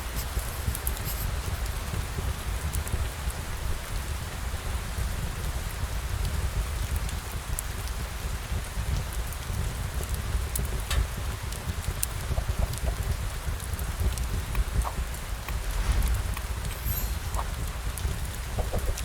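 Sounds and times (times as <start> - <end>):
steady rain falling: 0.0 - 19.0
low rumble: 14.8 - 19.0.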